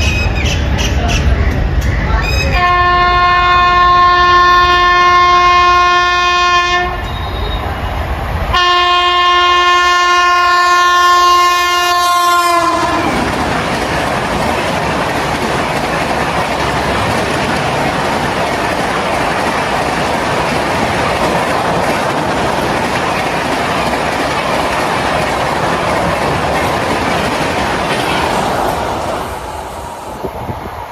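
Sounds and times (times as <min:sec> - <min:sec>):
train rushing past: 0:00.0 - 0:30.9
locomotive horn blasts: 0:02.5 - 0:07.6, 0:08.5 - 0:13.1.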